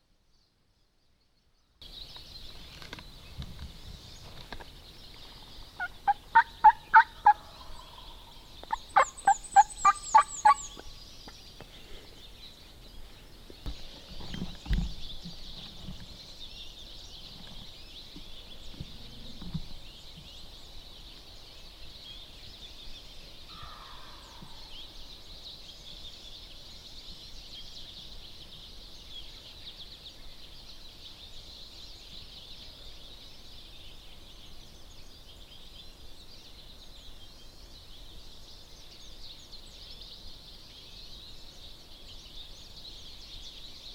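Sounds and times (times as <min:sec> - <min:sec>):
wild turkey calls: 0:05.8 - 0:10.9, 0:23.5 - 0:24.7.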